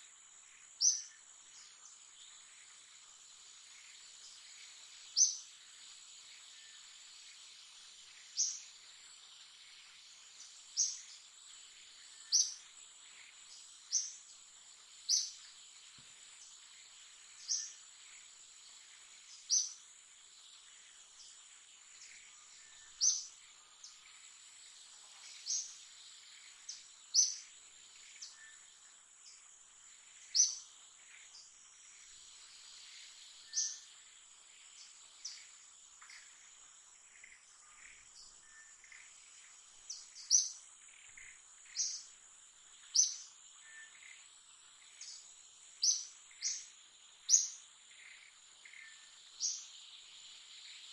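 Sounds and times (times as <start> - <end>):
insects droning: 0.0 - 50.9.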